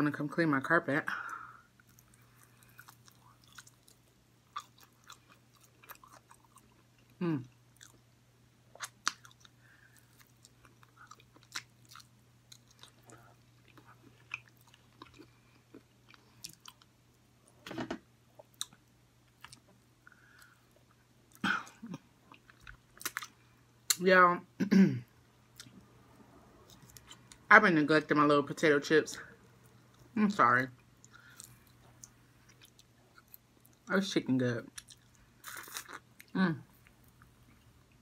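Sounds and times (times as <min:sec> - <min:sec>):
person chewing with mouth clicks: 0:08.7 - 0:16.9.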